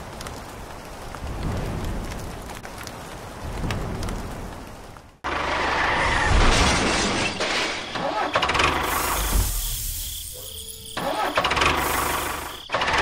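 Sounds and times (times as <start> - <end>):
tractor engine rumbling: 5.2 - 13.0.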